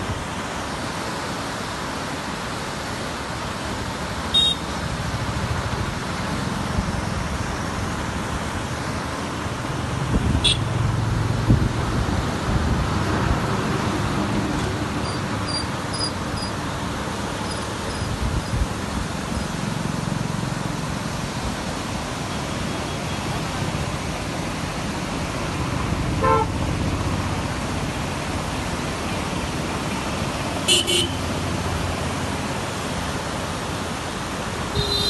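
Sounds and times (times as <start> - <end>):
steady rushing noise: 0.0 - 35.0
vehicle horn toots: 4.4 - 4.6, 10.4 - 10.7, 26.2 - 26.5, 30.7 - 31.2, 34.7 - 35.0.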